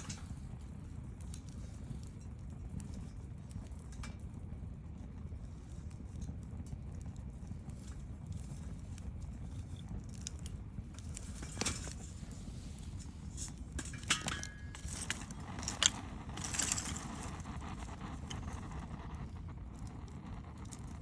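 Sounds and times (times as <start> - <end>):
burning wood popping and snapping: 0.0 - 21.0
campfire low rumble: 0.0 - 21.0.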